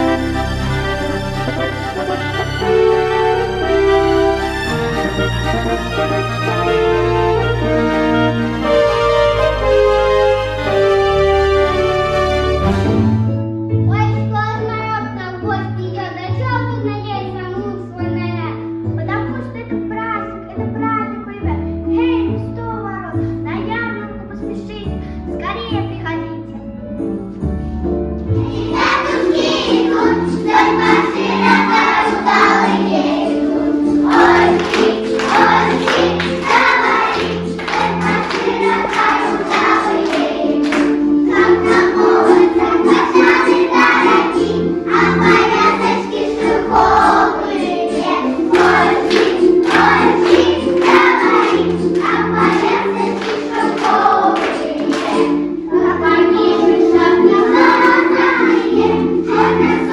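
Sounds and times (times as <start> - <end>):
instrumental accompaniment with bass: 0.0 - 15.0
children singing together: 28.4 - 59.9.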